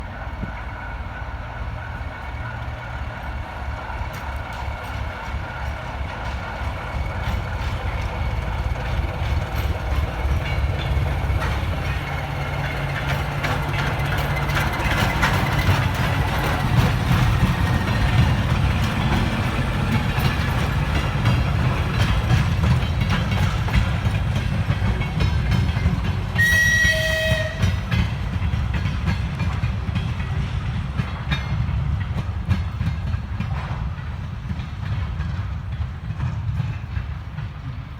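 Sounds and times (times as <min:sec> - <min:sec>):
diesel locomotive engine running: 0:00.0 - 0:37.9
locomotive horn blast: 0:26.4 - 0:27.8.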